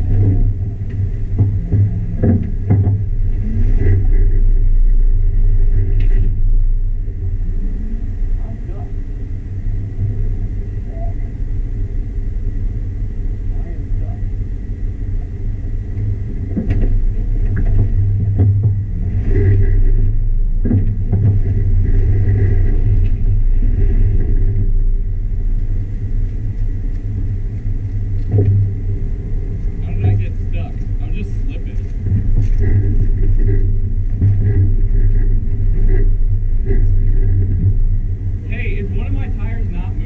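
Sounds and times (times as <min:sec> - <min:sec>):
engine rumbling at low speed: 0:00.0 - 0:40.0
sharp knocks: 0:01.4 - 0:03.1.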